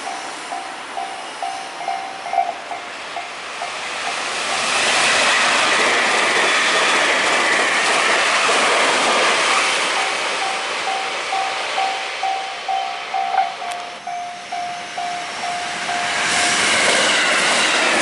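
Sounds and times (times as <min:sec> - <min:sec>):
crossing warning bell ringing: 0:00.0 - 0:04.8, 0:09.8 - 0:17.4
train passing at speed: 0:00.0 - 0:18.0.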